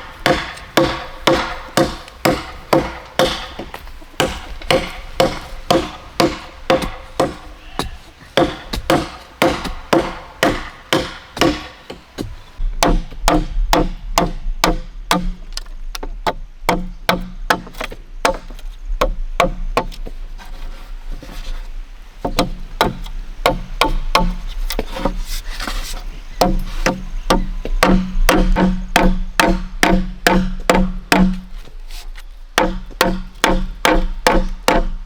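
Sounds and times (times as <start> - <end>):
blade chopping bamboo: 0.0 - 15.4, 22.2 - 25.8, 26.4 - 31.6, 32.6 - 35.0.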